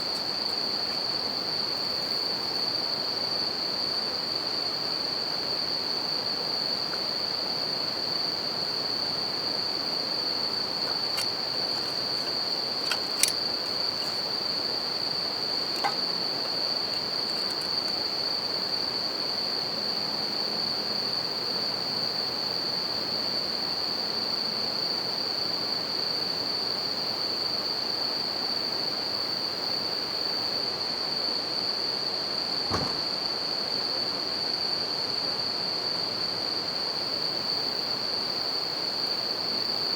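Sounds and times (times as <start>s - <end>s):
crickets ringing chorus: 0.0s - 21.4s.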